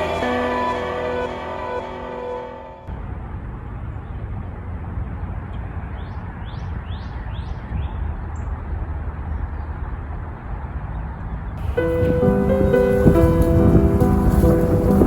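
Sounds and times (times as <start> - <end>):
low outdoor rumble: 0.0 - 6.9, 11.6 - 15.0.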